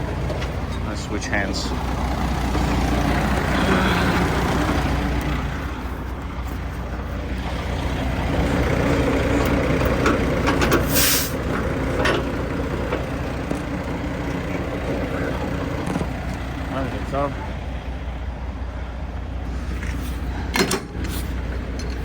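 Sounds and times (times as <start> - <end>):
diesel truck engine idling: 0.0 - 22.0
metal clicks and clanks: 9.3 - 10.9, 11.5 - 15.0, 19.7 - 22.0
compressed air hiss: 10.9 - 11.4.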